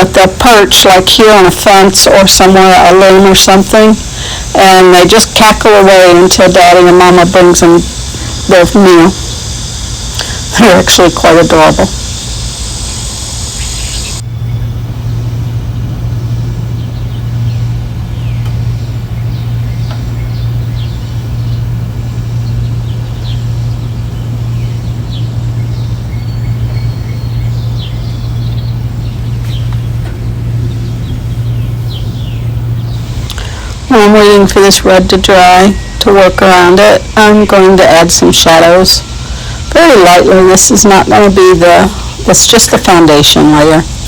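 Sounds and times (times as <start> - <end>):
steady low hum: 0.0 - 44.0
small birds chirping: 0.1 - 33.9.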